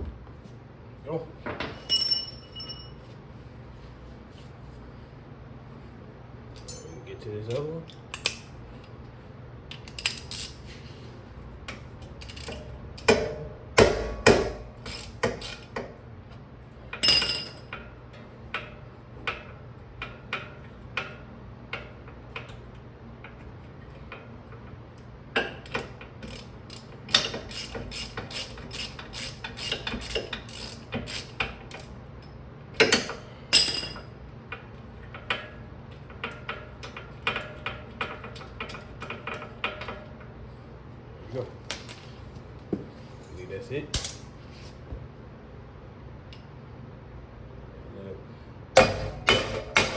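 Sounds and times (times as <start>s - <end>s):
metallic clanks of tools: 1.6s - 2.9s, 6.6s - 7.2s
ratchet wrench clicking: 14.8s - 15.7s, 26.3s - 31.8s.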